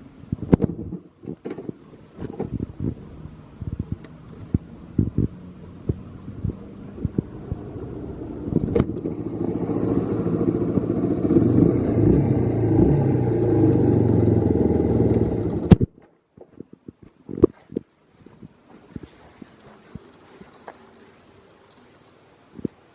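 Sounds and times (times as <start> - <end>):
single-cylinder engine running: 5.4 - 15.8.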